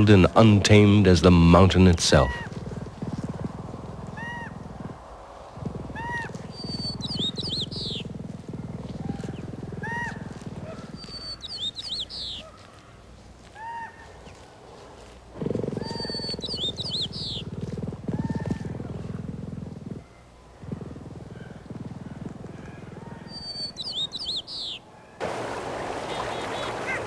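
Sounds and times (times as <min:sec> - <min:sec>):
low rough pulsing rumble: 0:00.0 - 0:11.3.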